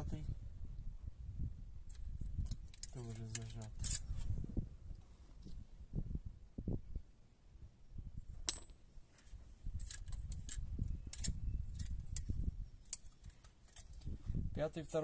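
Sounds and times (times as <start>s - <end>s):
metallic clicks of hand tools: 9.8s - 14.1s.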